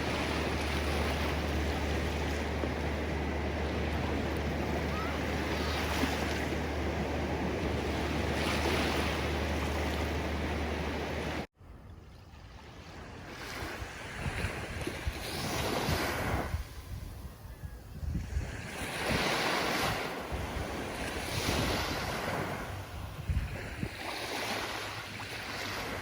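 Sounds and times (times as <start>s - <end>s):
ocean surf washing: 0.0s - 11.5s, 18.2s - 26.0s
low constant rumble: 0.0s - 12.8s.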